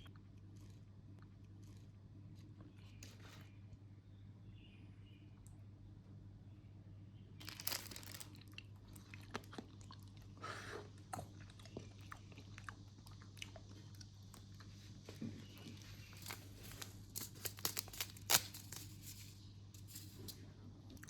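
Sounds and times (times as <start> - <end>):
chewing crunchy food: 0.0 - 3.2, 7.4 - 18.4
small crackling clicks: 7.4 - 8.7, 16.1 - 19.2.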